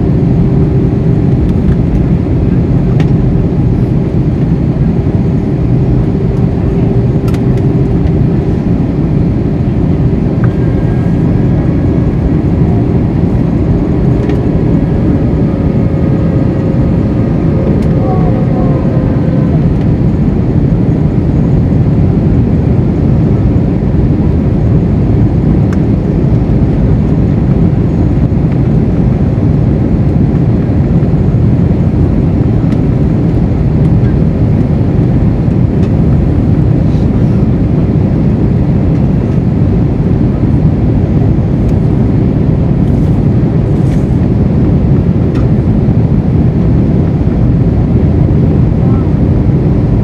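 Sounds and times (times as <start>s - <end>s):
jet engines rumbling: 0.0s - 50.0s.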